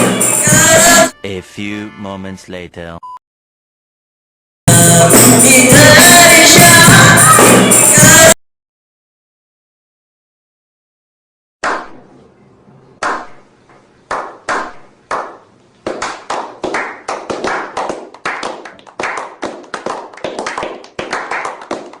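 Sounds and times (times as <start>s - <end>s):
sharp hand claps: 13.0s - 13.4s, 14.1s - 22.0s.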